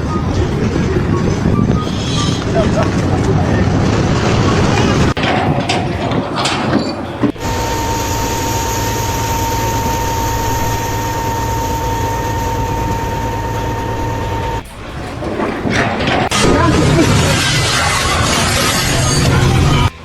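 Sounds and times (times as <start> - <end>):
irregular clattering: 2.4 - 19.9
machine high whine: 7.3 - 14.8, 16.0 - 20.0.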